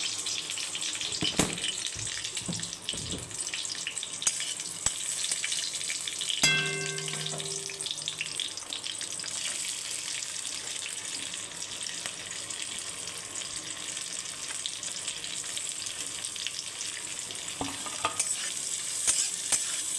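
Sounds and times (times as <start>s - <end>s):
rice sizzling in a pan: 0.0s - 19.9s
sharp ringing clang: 6.4s - 8.4s.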